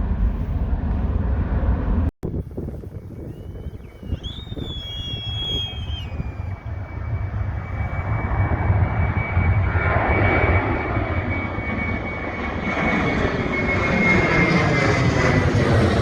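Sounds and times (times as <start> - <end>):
airliner engine rumble and whine: 0.0 - 16.0.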